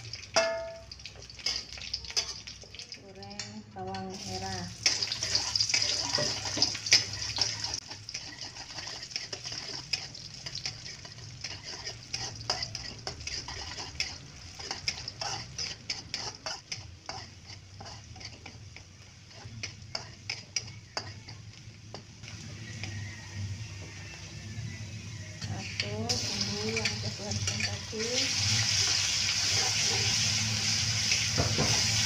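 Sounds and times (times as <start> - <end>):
shallots sizzling in hot oil: 0.0 - 32.0
metal spatula scraping a wok: 4.3 - 21.4, 25.4 - 32.0.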